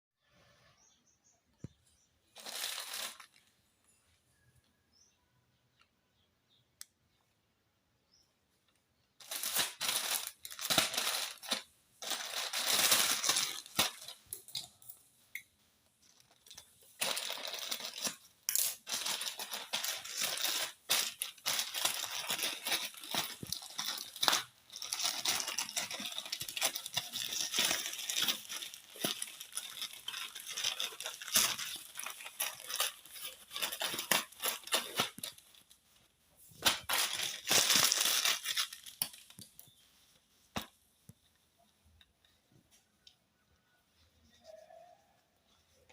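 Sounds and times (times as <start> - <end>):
packaging crinkling and rustling: 2.4 - 3.5, 9.2 - 14.9, 16.0 - 39.8.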